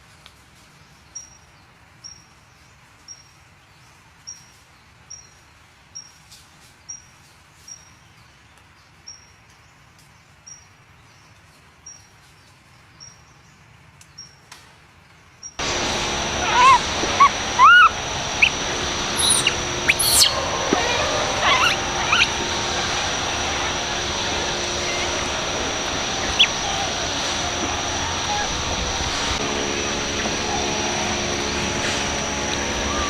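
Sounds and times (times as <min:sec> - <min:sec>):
soft outdoor hiss: 0:00.0 - 0:33.0
small bird chirping: 0:16.0 - 0:28.7.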